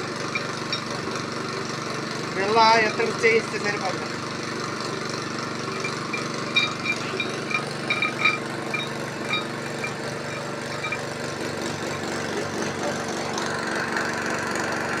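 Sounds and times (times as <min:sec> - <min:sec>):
engine running steadily: 0:00.0 - 0:15.0
short high-pitched tones: 0:05.7 - 0:11.0.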